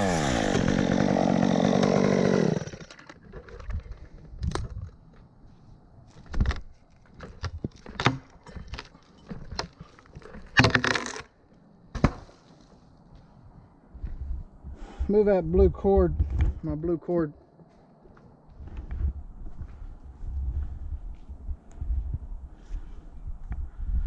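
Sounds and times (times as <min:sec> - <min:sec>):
chainsaw running: 0:00.0 - 0:03.2.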